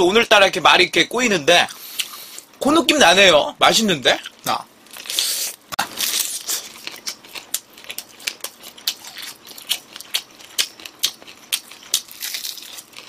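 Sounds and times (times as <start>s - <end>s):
chewing crispy fried chicken: 4.2s - 13.0s.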